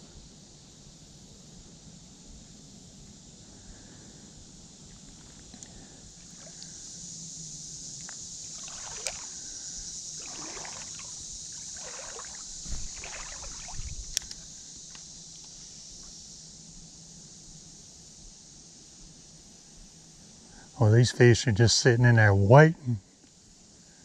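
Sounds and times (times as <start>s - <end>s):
steady high hiss: 0.0s - 24.0s
creek water sloshing: 8.4s - 14.4s.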